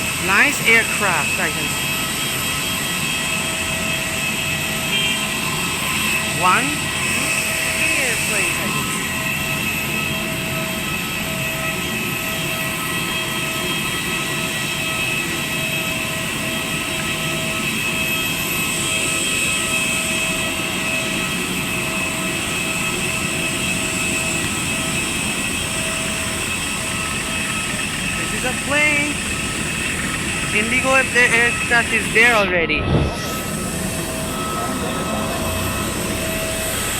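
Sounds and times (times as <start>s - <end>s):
steady whining tones: 0.0s - 36.9s
aircraft cabin rushing hum: 15.7s - 36.9s.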